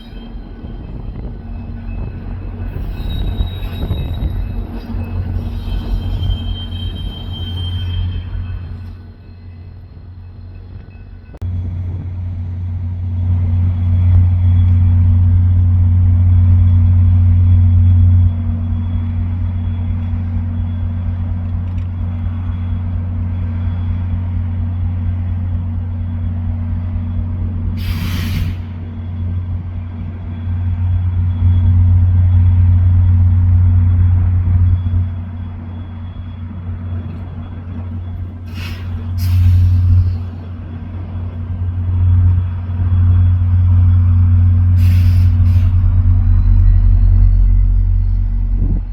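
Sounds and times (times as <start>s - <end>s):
diesel locomotive rumble: 0.0s - 48.9s
air release hisses: 27.8s - 28.7s, 44.8s - 45.8s.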